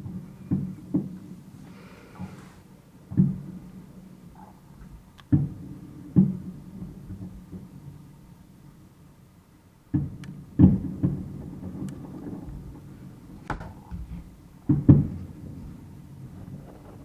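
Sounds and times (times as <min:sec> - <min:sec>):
fireworks bursting with bangs: 0:00.0 - 0:17.0.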